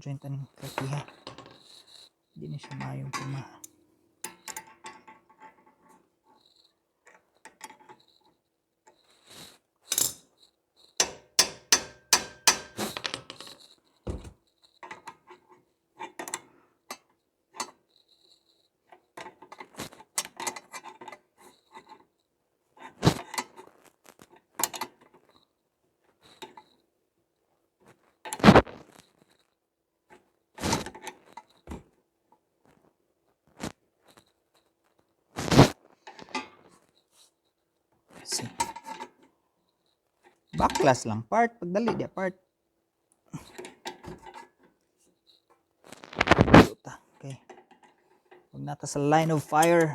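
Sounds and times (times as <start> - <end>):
metal tools clinking on steel: 2.4 - 5.2, 48.8 - 49.9.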